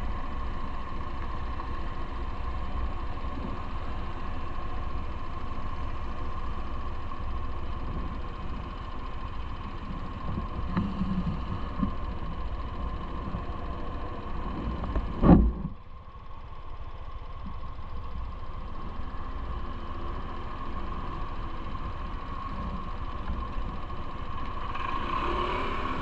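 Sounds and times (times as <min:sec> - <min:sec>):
bike running hum and rumble: 0:00.0 - 0:26.0.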